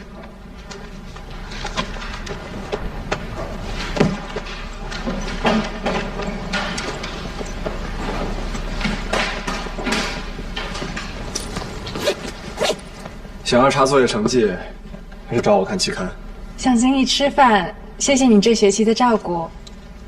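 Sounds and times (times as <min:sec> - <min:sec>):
chairs moving: 0:00.0 - 0:13.2
bags rustling: 0:11.5 - 0:13.0.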